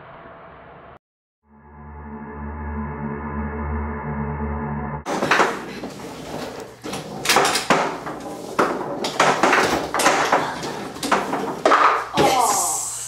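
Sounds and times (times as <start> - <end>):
foosball clacks and knocks: 5.1 - 12.2.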